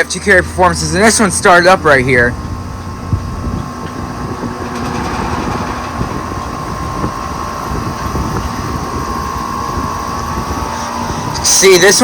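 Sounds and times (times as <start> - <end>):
compressors humming: 0.0 - 12.0
condenser fans blowing: 0.0 - 12.0
steady mid-pitched tone: 0.4 - 8.3.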